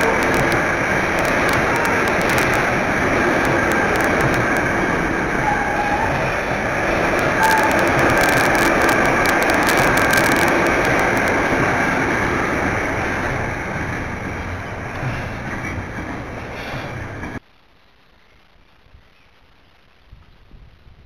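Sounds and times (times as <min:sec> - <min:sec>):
sharp clicks: 0:00.0 - 0:04.8, 0:07.0 - 0:11.8
train wheels running on rails: 0:00.0 - 0:17.4
wheel squeal: 0:07.2 - 0:11.1.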